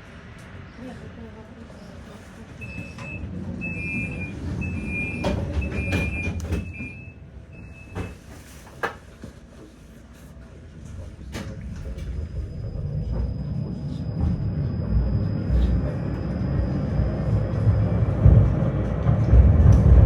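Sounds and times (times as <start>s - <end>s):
low rumble of tram: 0.0s - 20.0s
two-tone door warning beeps: 2.6s - 8.4s, 11.9s - 18.2s.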